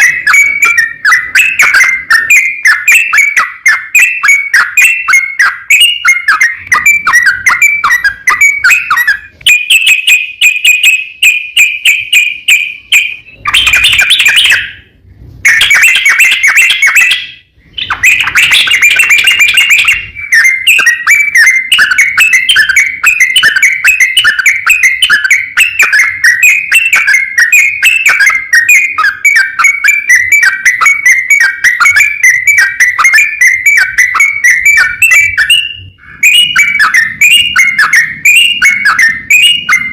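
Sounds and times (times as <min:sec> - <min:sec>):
bird singing bubbling song: 0:00.0 - 0:39.9.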